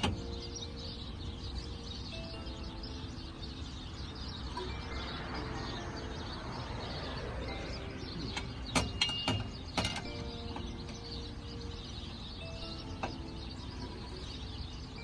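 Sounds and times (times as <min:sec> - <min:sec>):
metal tools clanking: 0:08.2 - 0:11.0.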